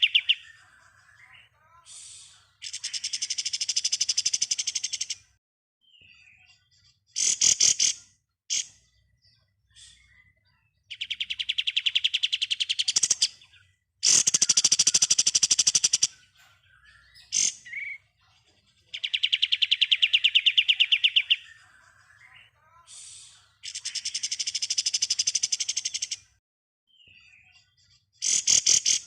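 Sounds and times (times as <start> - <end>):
songbird rapid trill: 0.0 - 1.3, 2.1 - 5.3, 14.0 - 18.1, 18.9 - 22.4, 23.2 - 26.3
bird chirps: 0.0 - 29.0.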